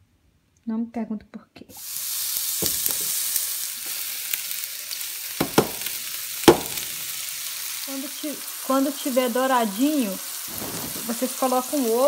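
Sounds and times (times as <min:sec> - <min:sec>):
onion sizzling in a frying pan: 0:01.7 - 0:12.0
knocks against a pan: 0:05.4 - 0:05.9, 0:06.5 - 0:06.9.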